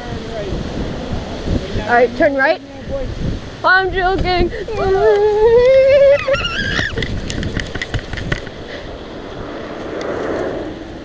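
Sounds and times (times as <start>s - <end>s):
bike rolling rush: 0.0s - 11.0s
person whooping: 4.7s - 7.0s.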